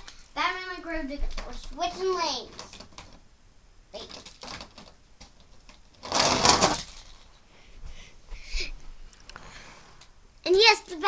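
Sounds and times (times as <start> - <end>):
toy trucks rattling down plastic ramp: 4.0 - 7.3.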